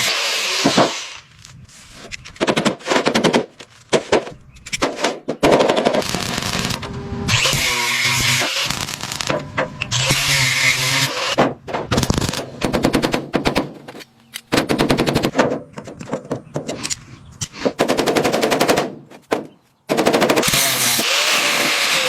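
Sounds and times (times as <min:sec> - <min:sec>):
motor hum: 0:06.1 - 0:07.8
rattling power tool hammering: 0:17.7 - 0:22.0.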